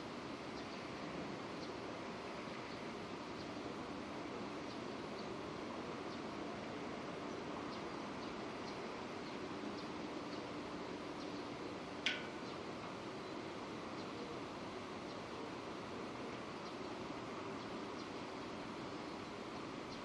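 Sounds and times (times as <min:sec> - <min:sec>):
drip ticks: 0:12.0 - 0:12.4.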